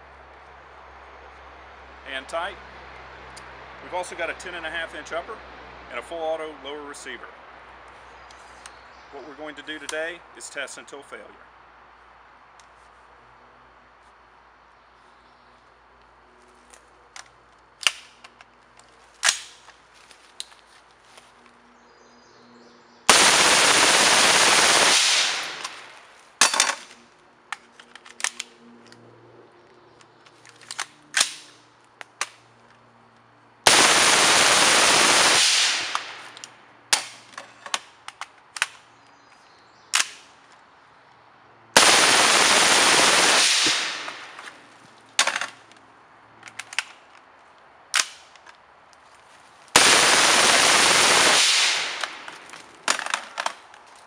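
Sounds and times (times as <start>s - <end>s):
suppressed automatic gunfire: 23.1s - 25.9s, 33.7s - 36.4s, 41.8s - 44.4s, 49.8s - 52.3s.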